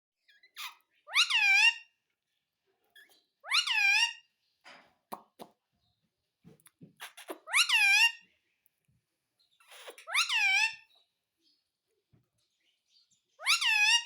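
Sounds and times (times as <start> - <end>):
parakeet calling: 0.3 - 1.9, 3.0 - 4.3, 7.0 - 8.3, 9.6 - 11.0, 13.4 - 14.0.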